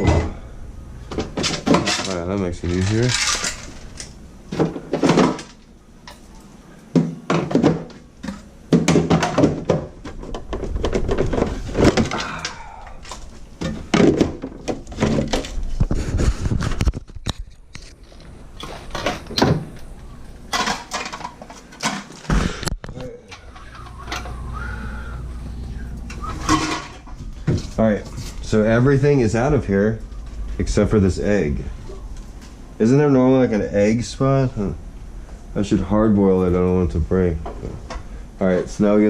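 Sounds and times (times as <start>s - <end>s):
jars and bottles clattering: 1.1s - 6.2s, 6.9s - 15.7s, 20.5s - 22.6s, 26.1s - 27.8s.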